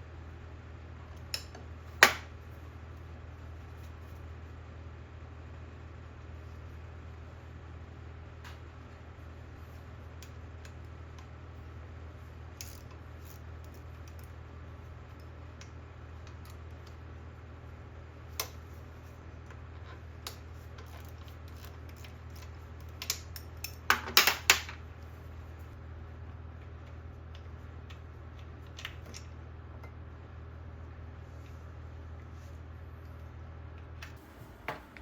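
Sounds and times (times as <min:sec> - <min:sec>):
steady low hum: 0:00.0 - 0:23.9, 0:24.7 - 0:35.0
tools and small parts clicking: 0:12.6 - 0:14.4.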